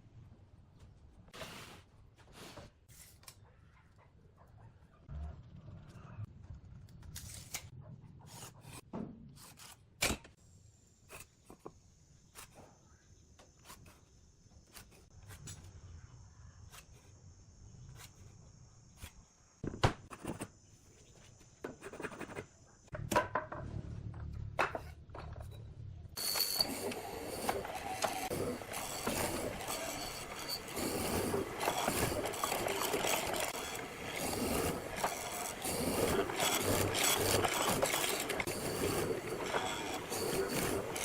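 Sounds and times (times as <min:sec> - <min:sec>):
wooden tools tapping and knocking: 0:26.2 - 0:41.0.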